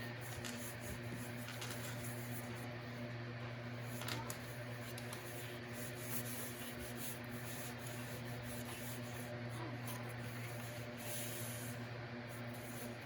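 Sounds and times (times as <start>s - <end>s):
paper crinkle: 0.0s - 2.8s, 3.7s - 13.0s
steady low hum: 0.0s - 13.0s
paper rustling: 0.2s - 2.7s, 3.8s - 11.7s.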